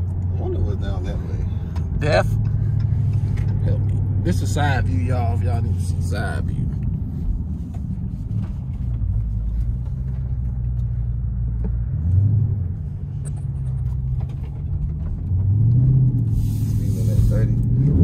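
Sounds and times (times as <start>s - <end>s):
car engine drone from inside: 0.0s - 18.0s
road noise: 0.0s - 18.0s.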